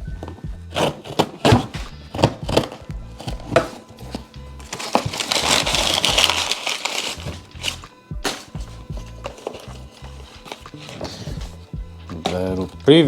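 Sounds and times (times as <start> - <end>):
music with bass beat: 0.0 - 0.8, 1.8 - 4.6, 7.4 - 12.9
packaging rustling: 0.8 - 12.7.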